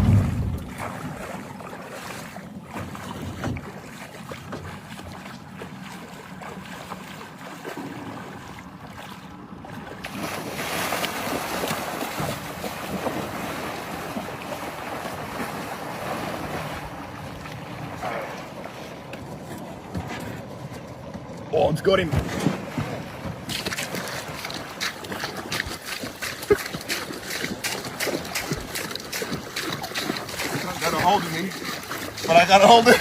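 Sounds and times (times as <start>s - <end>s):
wind buffeting microphone: 0.0s - 1.6s
river water splashing: 0.0s - 33.0s.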